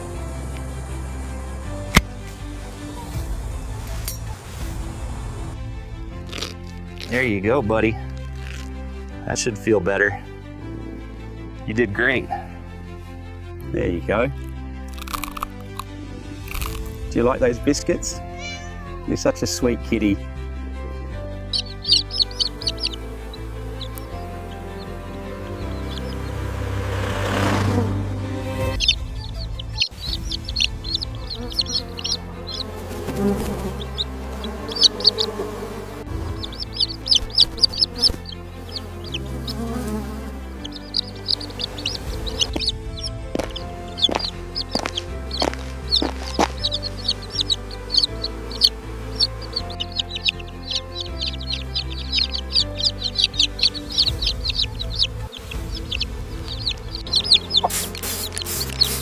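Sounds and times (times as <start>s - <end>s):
background music with low notes: 0.0s - 59.0s
birds chirping: 21.0s - 27.7s, 28.3s - 59.0s
rustling bursts: 56.4s - 59.0s.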